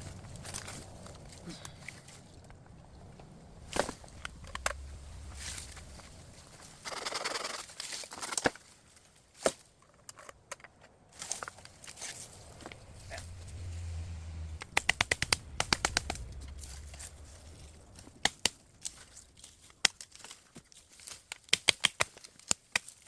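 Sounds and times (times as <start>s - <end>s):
bamboo cracking and snapping: 0.0s - 23.0s.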